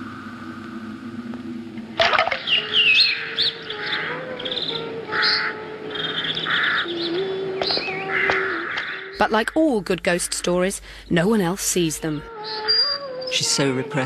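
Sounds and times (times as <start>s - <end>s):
steady low drone: 0.0s - 12.3s
bird cawing harshly: 2.0s - 4.3s, 5.1s - 9.2s
birds chirping and warbling: 2.0s - 14.0s.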